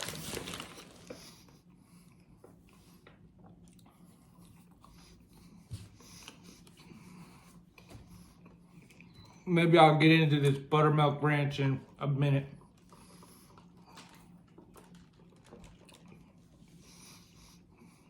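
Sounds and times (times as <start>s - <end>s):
faint eating sounds: 0.0s - 10.8s, 11.4s - 18.0s
small clicks and rustles: 13.6s - 16.3s.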